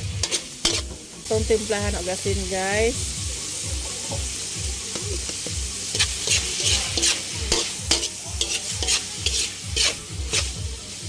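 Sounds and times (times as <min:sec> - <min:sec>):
meat sizzling in a wok: 0:00.0 - 0:11.0
metal ladle scraping a wok: 0:00.2 - 0:00.9, 0:05.4 - 0:10.6.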